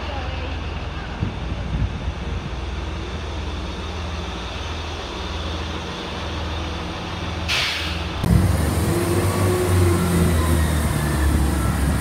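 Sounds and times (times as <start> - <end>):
train rumbling to a stop: 0.0 - 12.0
short hiss: 7.5 - 8.1.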